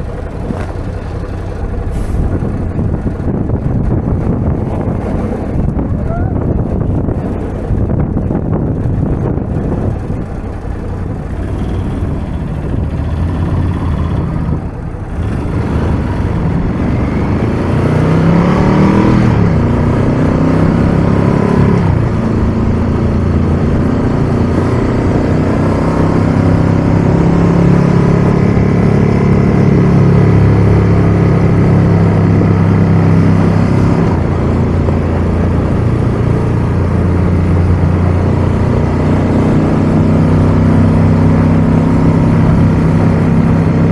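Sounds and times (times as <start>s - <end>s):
motorcycle engine accelerating: 0.0s - 43.9s
wind rushing: 1.9s - 10.3s.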